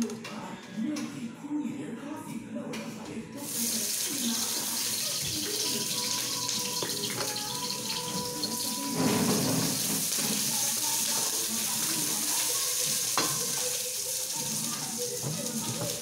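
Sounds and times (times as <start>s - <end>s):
hot oil sizzling in a wok: 3.4s - 16.0s.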